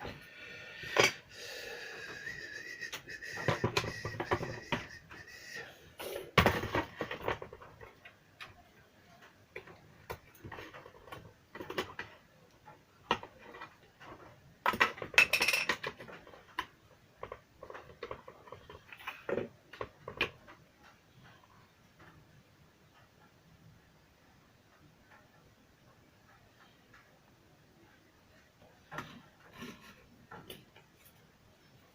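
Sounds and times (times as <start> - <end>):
tools clicking and tapping: 2.1 - 5.6, 6.4 - 23.3.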